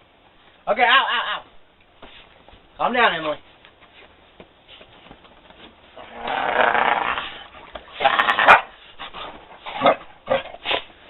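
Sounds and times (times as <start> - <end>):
dog growling: 6.0 - 8.7.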